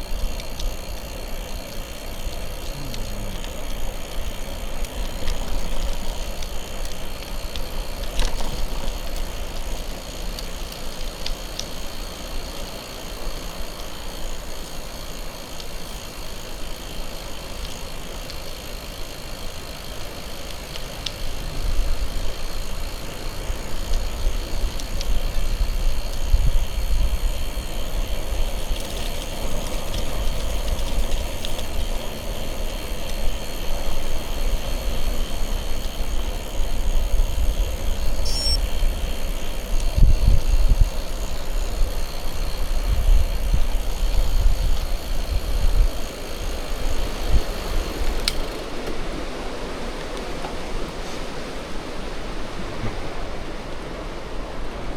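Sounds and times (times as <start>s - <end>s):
bicycle tyres rolling: 0.0s - 54.9s
wind rumbling on microphone: 21.2s - 54.9s.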